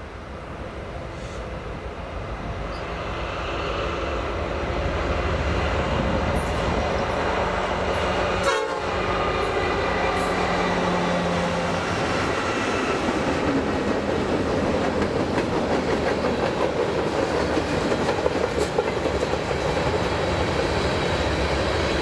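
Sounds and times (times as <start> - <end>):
freight train passing: 0.0 - 22.0
low locomotive engine tone: 0.0 - 22.0.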